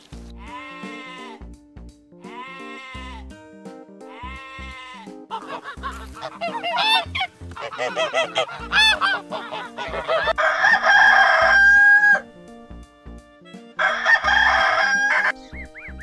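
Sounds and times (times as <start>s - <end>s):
background music: 0.0s - 16.0s
geese honking: 4.7s - 12.2s, 13.5s - 16.0s
rooster crowing: 10.0s - 12.2s, 13.8s - 15.4s.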